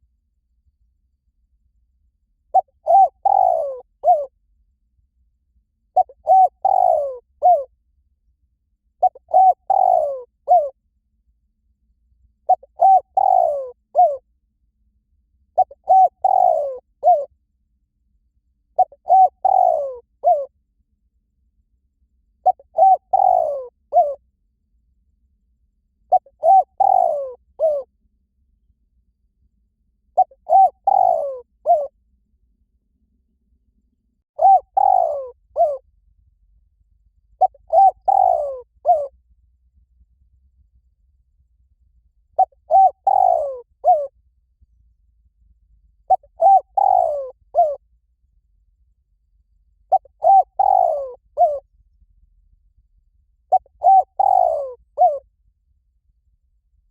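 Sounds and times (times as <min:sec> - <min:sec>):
dove cooing: 0:02.5 - 0:04.3, 0:06.0 - 0:07.7, 0:09.0 - 0:10.8, 0:12.5 - 0:14.2, 0:15.6 - 0:17.3, 0:18.8 - 0:20.5, 0:22.4 - 0:24.2, 0:26.1 - 0:27.9, 0:30.2 - 0:31.9, 0:34.4 - 0:35.8, 0:37.4 - 0:39.1, 0:42.4 - 0:44.1, 0:46.1 - 0:47.8, 0:49.9 - 0:51.6, 0:53.5 - 0:55.2.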